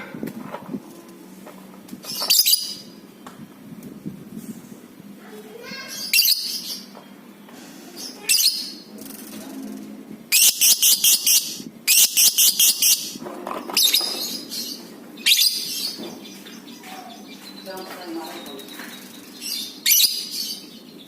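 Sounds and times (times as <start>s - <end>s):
lovebird chattering: 10.3s - 16.0s, 18.3s - 20.8s.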